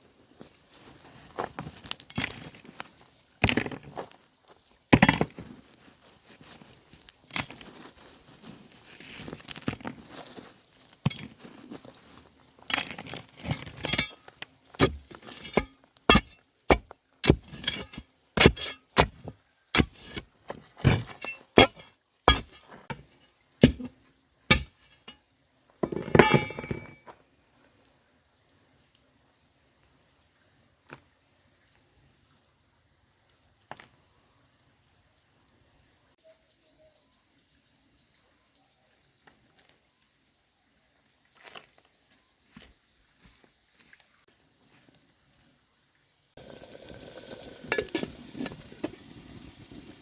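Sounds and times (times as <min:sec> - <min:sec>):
hand tool striking bamboo: 0:14.8 - 0:23.0, 0:23.6 - 0:25.0.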